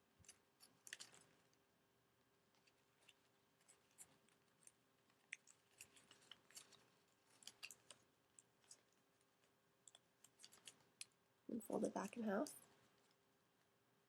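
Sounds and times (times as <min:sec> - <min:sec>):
paper crinkling and clicking: 0:00.2 - 0:01.6, 0:02.5 - 0:11.1.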